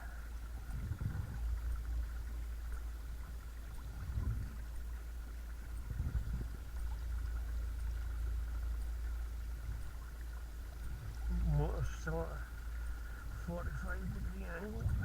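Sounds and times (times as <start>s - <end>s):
rumble of water and wind: 0.0s - 15.0s.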